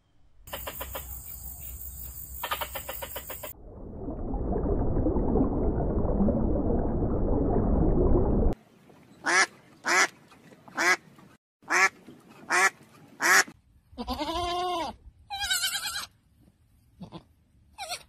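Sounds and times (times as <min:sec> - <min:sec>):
lamb bleating: 0:14.0 - 0:16.1, 0:17.0 - 0:18.0.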